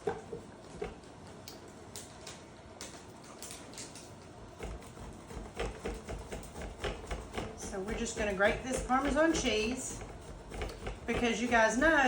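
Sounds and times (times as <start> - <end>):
cheese grater clicking and knocking: 4.6 - 12.0
grater rasping strokes: 4.6 - 12.0.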